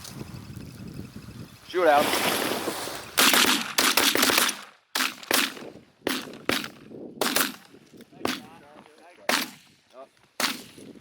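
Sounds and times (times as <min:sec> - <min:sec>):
shotgun shots echoing: 0:03.2 - 0:07.6, 0:09.3 - 0:09.6, 0:10.4 - 0:10.8.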